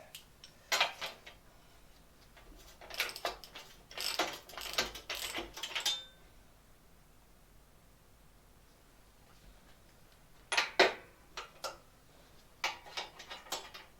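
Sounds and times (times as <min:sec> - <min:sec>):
metal parts and tools clinking: 0:02.8 - 0:06.1.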